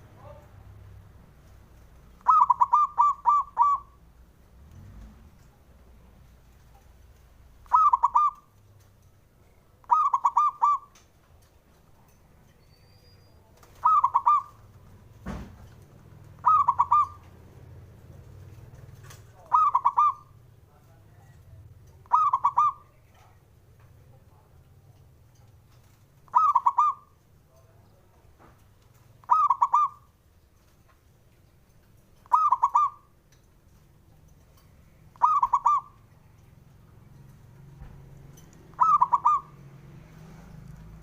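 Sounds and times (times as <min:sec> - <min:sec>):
dove cooing: 0:02.1 - 0:04.0, 0:07.6 - 0:08.6, 0:09.8 - 0:11.1, 0:13.6 - 0:15.0, 0:16.2 - 0:20.5, 0:22.0 - 0:23.4, 0:25.8 - 0:27.2, 0:29.2 - 0:30.1, 0:32.2 - 0:33.2, 0:35.1 - 0:36.5, 0:38.6 - 0:41.0.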